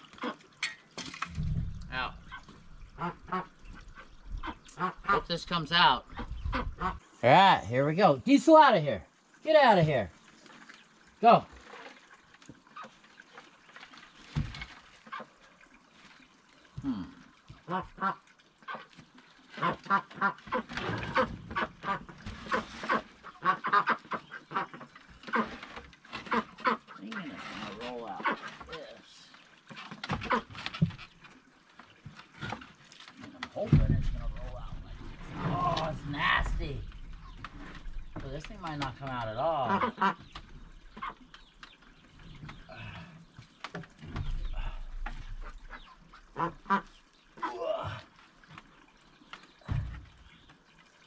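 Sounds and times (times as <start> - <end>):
rough noise: 1.2 - 4.0
low rumble of handling noise: 1.2 - 5.3, 33.6 - 39.3
ducks quacking: 1.4 - 7.1, 17.6 - 18.9, 19.6 - 28.9, 30.1 - 30.6, 34.1 - 43.1, 44.2 - 47.6.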